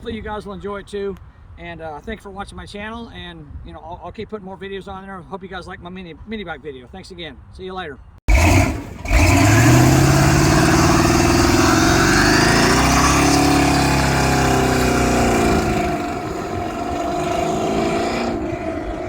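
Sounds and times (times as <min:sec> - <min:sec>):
mini bike engine revving: 0:08.3 - 0:19.0.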